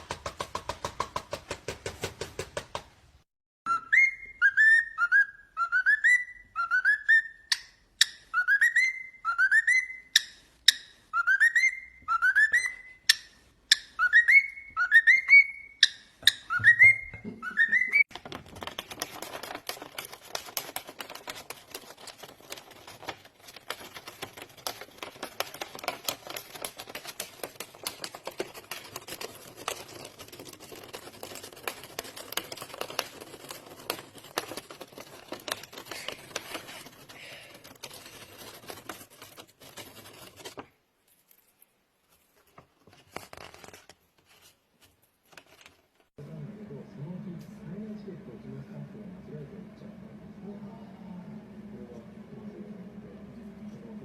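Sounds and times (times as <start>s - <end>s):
crackling and rustling noise: 18.0s - 46.2s.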